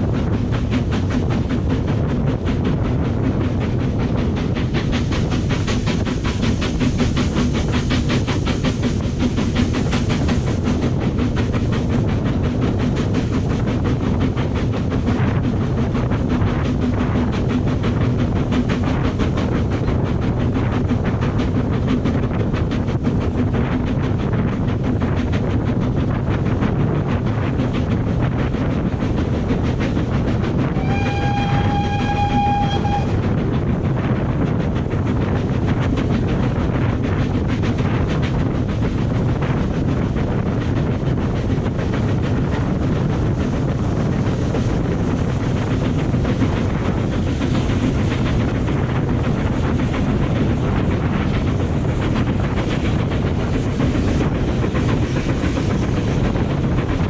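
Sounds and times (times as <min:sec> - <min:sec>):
train wheels rumbling on rails: 0:00.0 - 0:57.0
train whistle: 0:30.7 - 0:33.2.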